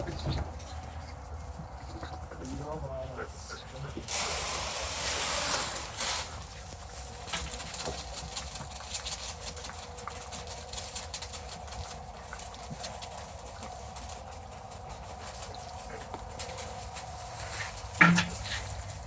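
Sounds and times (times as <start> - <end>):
sheep feeding clatter: 0.0 - 19.0
feed pellets poured from bucket: 4.1 - 6.5.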